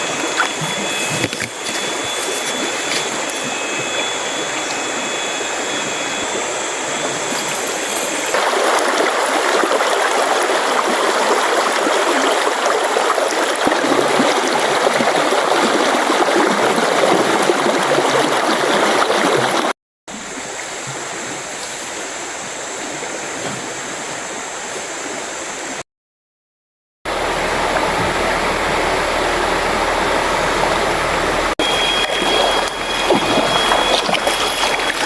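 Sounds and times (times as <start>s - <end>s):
thin high steady tone: 0.0s - 8.4s, 30.0s - 35.0s
mountain stream rushing: 6.4s - 19.7s, 27.1s - 35.0s.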